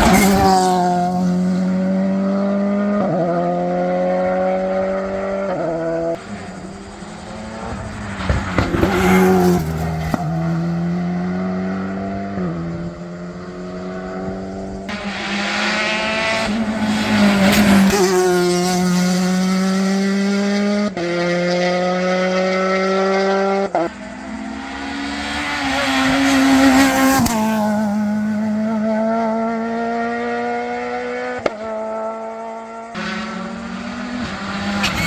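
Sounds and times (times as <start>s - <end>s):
rally car engine accelerating: 0.0s - 35.0s.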